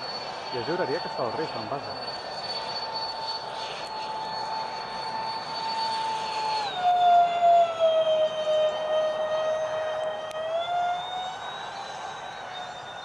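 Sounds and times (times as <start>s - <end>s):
electric ducted fans whining: 3.4s - 13.0s.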